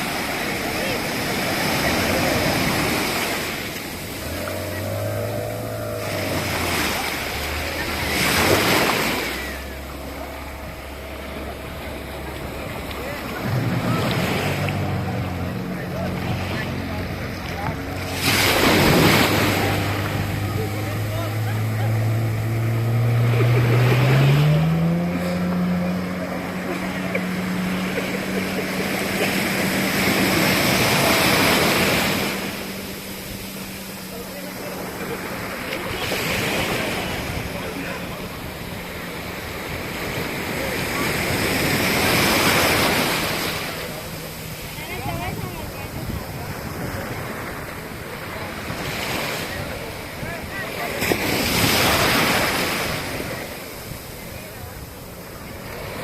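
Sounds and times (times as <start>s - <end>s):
jet ski engine running: 0.0s - 56.0s
water rushing and splashing: 0.0s - 56.0s
wind buffeting microphone: 44.0s - 48.6s.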